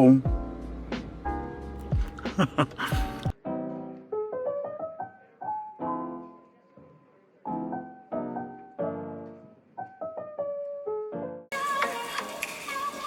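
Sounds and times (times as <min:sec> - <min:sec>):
solo piano music: 0:03.3 - 0:06.5, 0:07.4 - 0:12.4.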